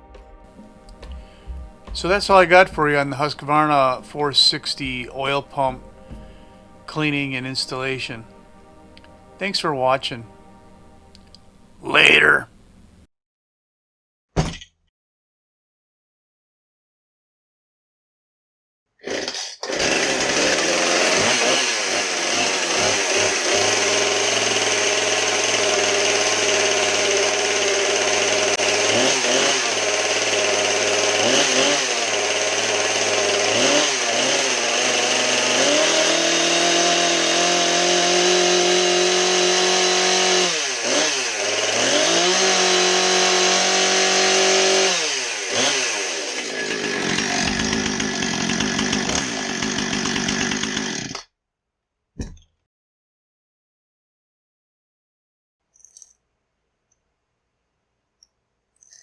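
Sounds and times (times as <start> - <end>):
chainsaw revving: 0.0 - 8.4, 19.0 - 51.3.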